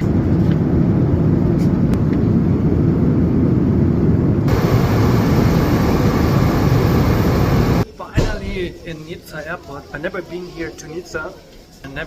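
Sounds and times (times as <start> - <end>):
airliner low rumble: 0.0 - 7.8
high hiss: 4.5 - 8.9.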